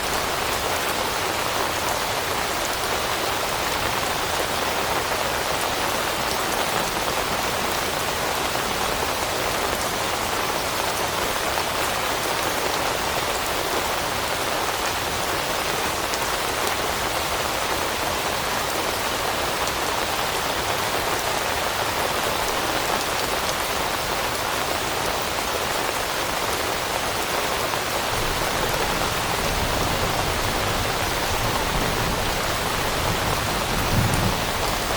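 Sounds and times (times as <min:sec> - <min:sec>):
rain falling on leaves: 0:00.0 - 0:34.9.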